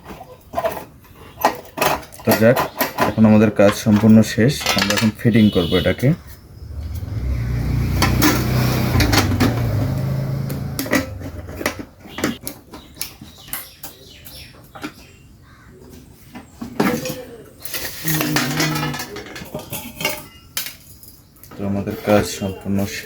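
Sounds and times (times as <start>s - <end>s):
metal clinks and knocks: 0.1s - 7.2s, 18.3s - 21.3s.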